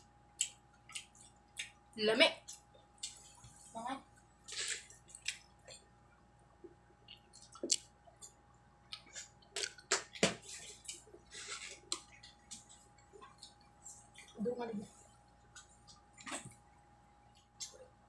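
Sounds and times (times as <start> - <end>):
chewing and lip-smacking: 0.3 - 5.9, 6.6 - 14.4, 15.3 - 17.9
wet mouth clicks: 7.1 - 10.1.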